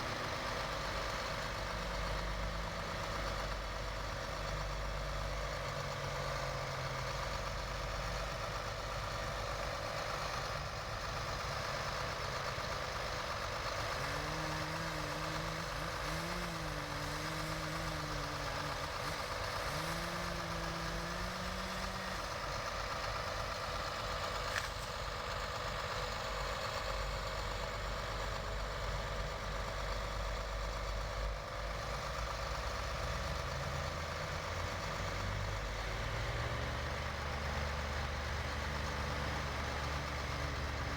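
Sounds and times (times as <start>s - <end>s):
heavy machinery engine running: 0.0s - 40.9s.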